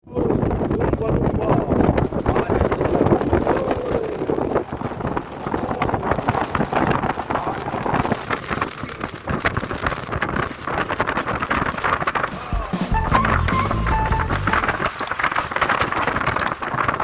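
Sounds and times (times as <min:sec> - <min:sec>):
wind buffeting microphone: 0:00.0 - 0:17.0
rushing sea water: 0:00.1 - 0:17.0.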